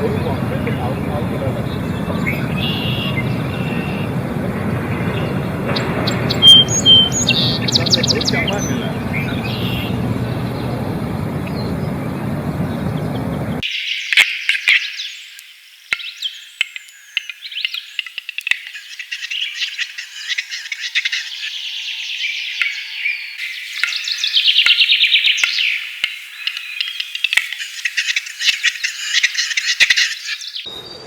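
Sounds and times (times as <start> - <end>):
steady rushing noise: 0.0 - 13.6
small birds chirping: 0.0 - 31.0.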